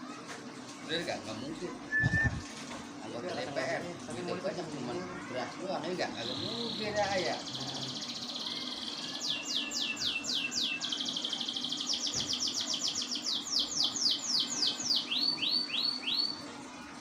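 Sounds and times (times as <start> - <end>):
canary singing: 6.2 - 16.4.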